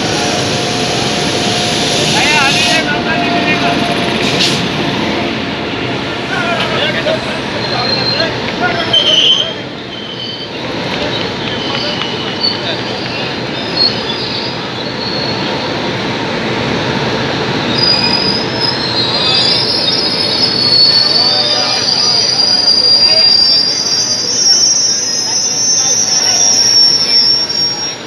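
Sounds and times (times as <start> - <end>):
train coaches rumbling past: 0.0 - 28.0
high wavering wheel squeal: 11.5 - 15.7, 17.7 - 28.0.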